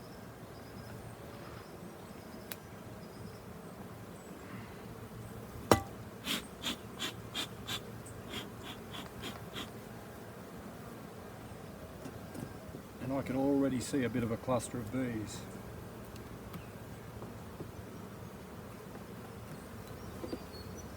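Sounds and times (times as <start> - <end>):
honeybees humming: 0.1 - 20.9
sharp knock: 5.7 - 5.9.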